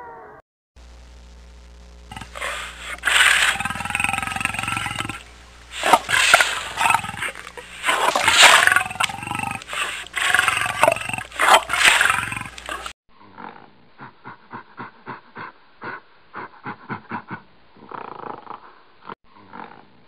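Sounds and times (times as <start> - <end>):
lion growling and roaring: 2.1 - 13.6
pulsing animal sound: 2.1 - 18.7.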